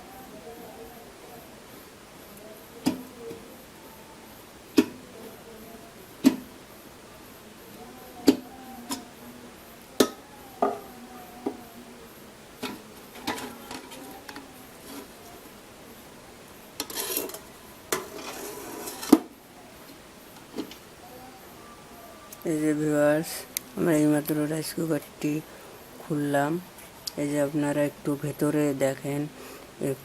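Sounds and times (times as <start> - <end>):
metal scraping: 16.8 - 19.3.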